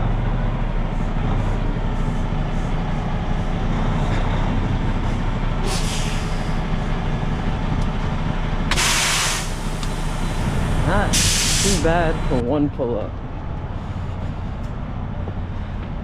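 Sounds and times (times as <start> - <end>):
truck diesel engine rumbling: 0.0 - 16.0
air brake hiss: 5.6 - 6.5, 8.7 - 10.3, 11.1 - 11.9.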